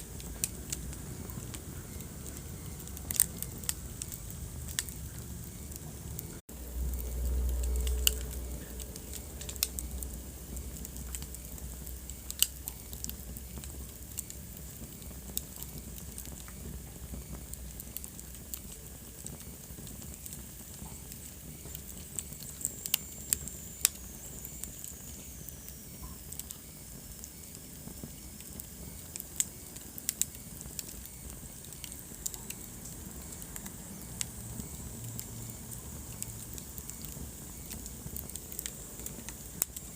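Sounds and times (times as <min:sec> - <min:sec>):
low rumble: 0:00.0 - 0:14.1
wood fire crackling and popping: 0:00.0 - 0:39.9.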